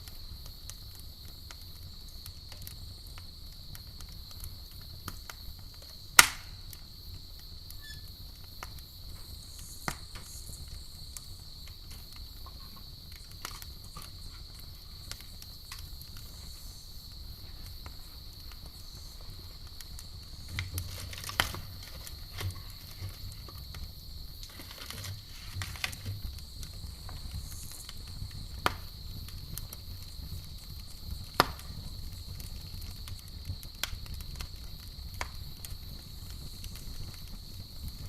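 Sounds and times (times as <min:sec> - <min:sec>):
campfire crackling and popping: 0:00.0 - 0:38.0
high insect trill: 0:05.4 - 0:33.3.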